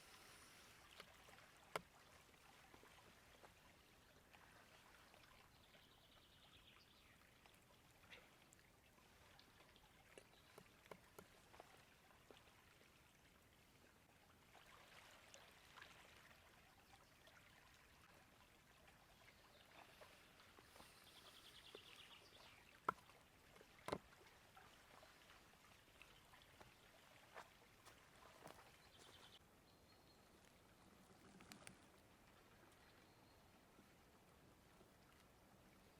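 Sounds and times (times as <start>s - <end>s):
river running: 0.0s - 35.9s
soft clicks: 30.4s - 31.9s.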